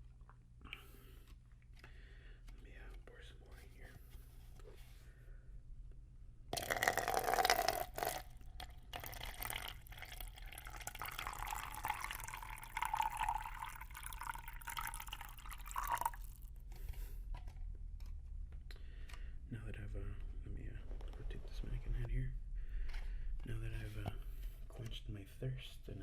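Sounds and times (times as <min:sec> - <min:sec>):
water pouring into a cup: 0:06.6 - 0:16.5.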